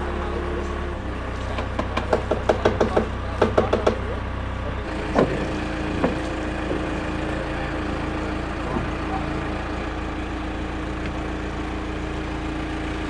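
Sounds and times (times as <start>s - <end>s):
engine humming: 0.0s - 13.0s
faint knocks: 4.9s - 9.3s.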